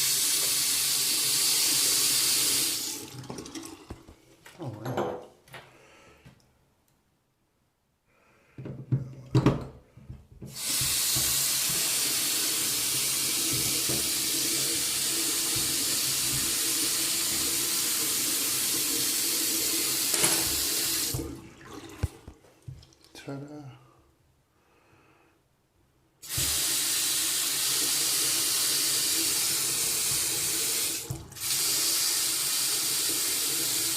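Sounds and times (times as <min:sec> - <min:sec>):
faucet running into sink: 0:00.0 - 0:04.1, 0:10.5 - 0:23.1, 0:26.2 - 0:33.9.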